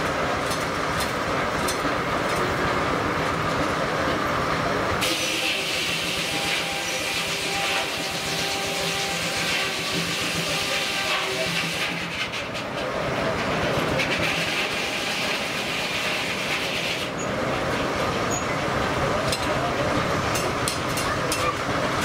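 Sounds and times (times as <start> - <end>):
steam hissing: 5.0 - 12.6, 13.9 - 19.1.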